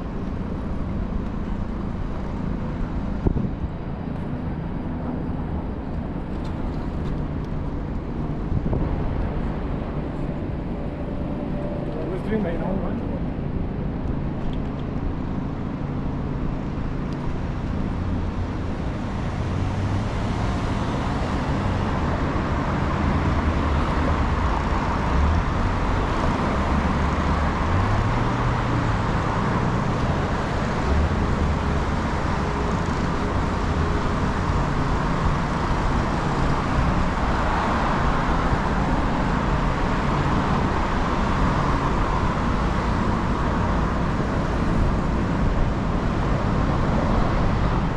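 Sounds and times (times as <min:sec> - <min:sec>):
constant road hiss: 0:00.0 - 0:47.9
traffic rumble: 0:00.0 - 0:47.9.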